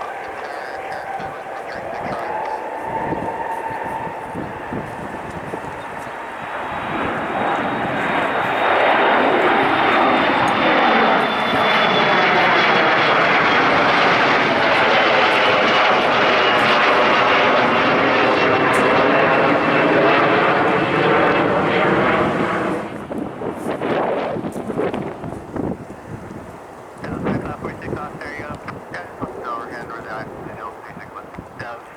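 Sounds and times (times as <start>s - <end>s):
jet airliner engine whine: 0.0s - 31.9s.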